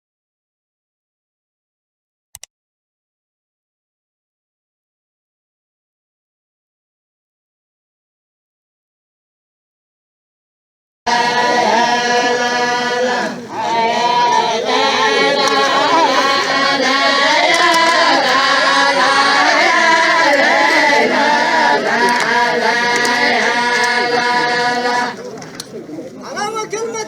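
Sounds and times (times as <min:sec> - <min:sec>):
group chanting in unison: 0:11.1 - 0:25.4.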